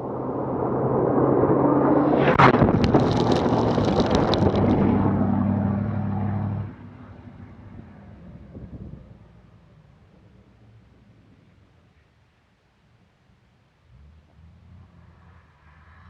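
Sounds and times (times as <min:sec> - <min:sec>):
diesel truck driving past: 0:00.0 - 0:10.2
gravel clicks: 0:02.2 - 0:06.7.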